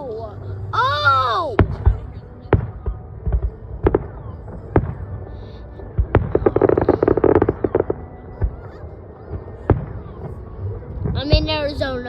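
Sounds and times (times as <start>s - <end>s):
rapid firework crackling: 1.6s - 8.7s.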